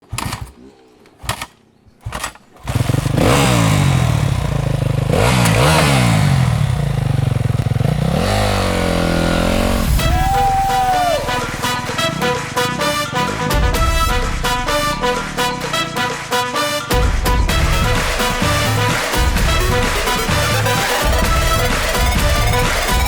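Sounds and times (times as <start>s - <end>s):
motorcycle engine revving: 0.0s - 0.5s, 1.2s - 23.0s.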